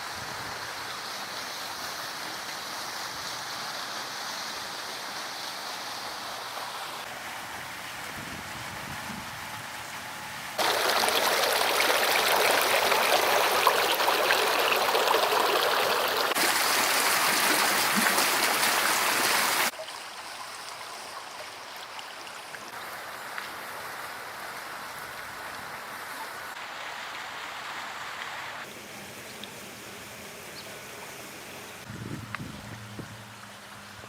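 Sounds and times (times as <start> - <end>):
steady outdoor noise: 0.0 - 34.0
running water splashing: 10.6 - 34.0.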